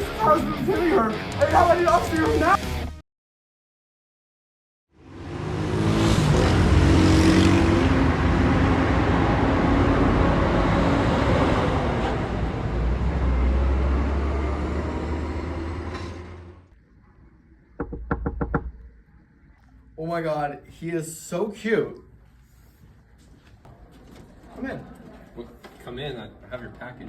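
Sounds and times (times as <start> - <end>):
car driving by: 5.0 - 16.7.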